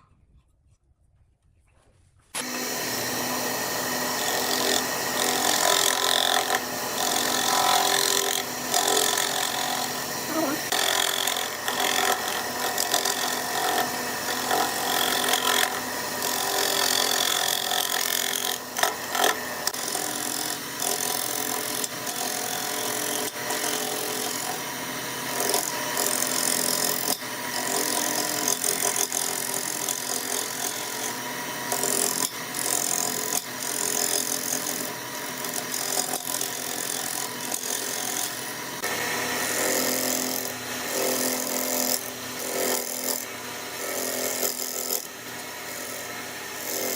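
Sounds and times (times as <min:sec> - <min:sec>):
tool cutting spinning wood: 0:02.3 - 0:46.9
lathe motor hum: 0:02.4 - 0:10.7.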